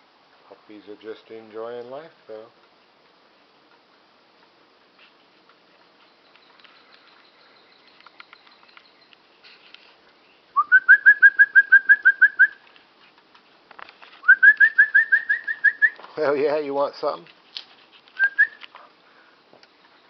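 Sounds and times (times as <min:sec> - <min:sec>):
faint scattered ticks: 0:00.3 - 0:16.3
songbird trilling: 0:06.0 - 0:09.3.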